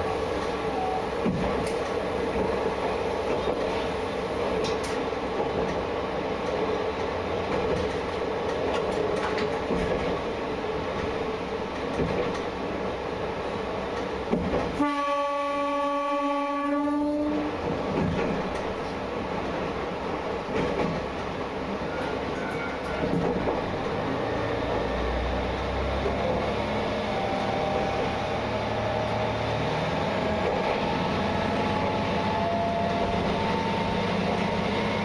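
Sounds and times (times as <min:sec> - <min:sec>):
diesel railcar running: 0:00.0 - 0:35.0
train horn: 0:00.7 - 0:01.1, 0:14.7 - 0:17.6, 0:32.2 - 0:33.8
faint rail clicks: 0:01.2 - 0:10.3, 0:10.9 - 0:12.6, 0:13.9 - 0:14.8, 0:17.6 - 0:19.6, 0:20.5 - 0:24.0.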